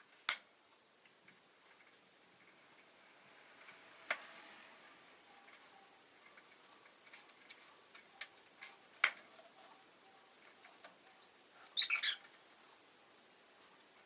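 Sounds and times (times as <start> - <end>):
bird high chirps: 11.8 - 12.3.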